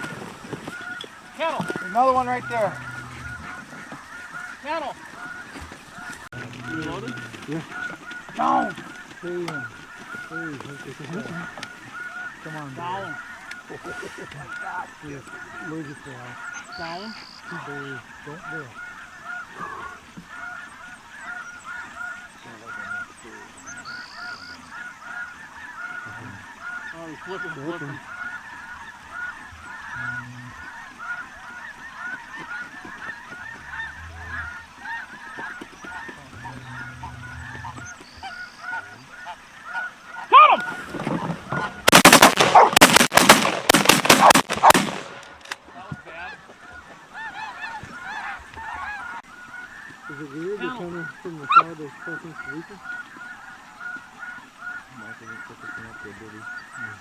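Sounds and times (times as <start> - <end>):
snow geese honking: 0.0 - 57.0
shotgun blasts: 41.8 - 45.6.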